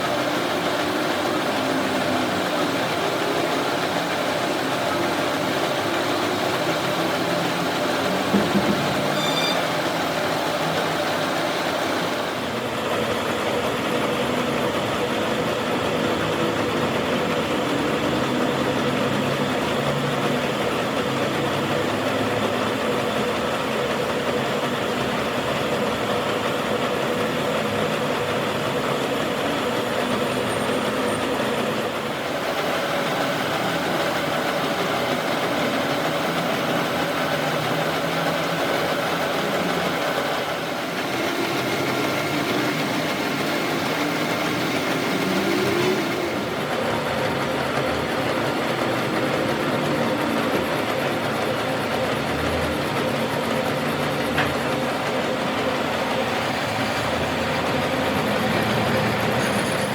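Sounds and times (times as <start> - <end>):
machine running with hum: 0.0 - 59.9.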